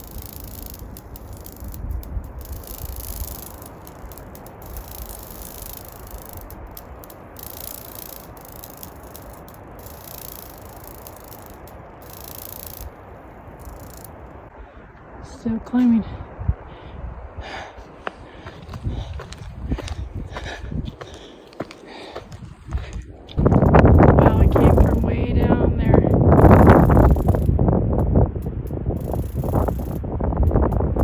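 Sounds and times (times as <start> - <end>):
rustling hiss: 0.0 - 14.8, 23.5 - 31.0
wind rumbling on microphone: 0.0 - 31.0.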